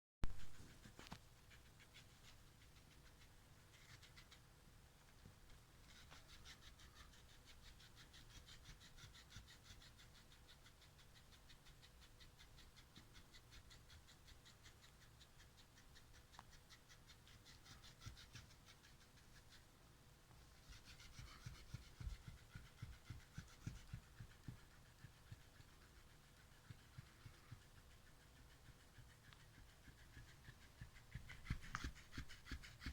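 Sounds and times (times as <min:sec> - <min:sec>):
faint fast repeated cat sounds: 0:00.2 - 0:32.9.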